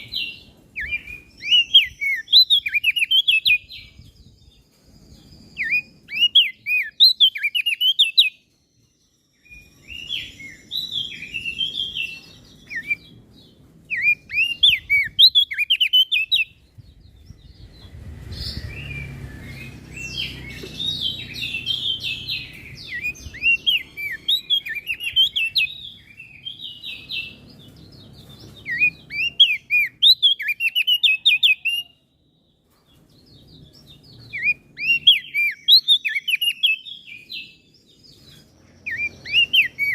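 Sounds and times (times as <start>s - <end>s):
songbird chirping: 0.0s - 39.9s
faint low rumble: 16.4s - 24.2s.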